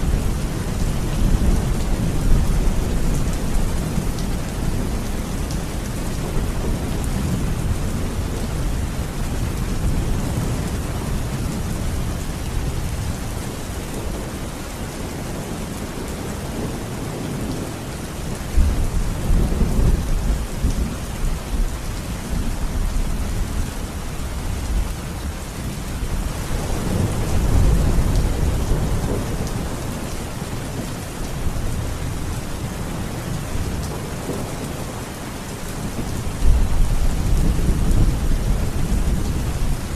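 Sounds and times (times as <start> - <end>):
steady rain: 0.0 - 39.9
low rolling thunder: 15.3 - 39.9.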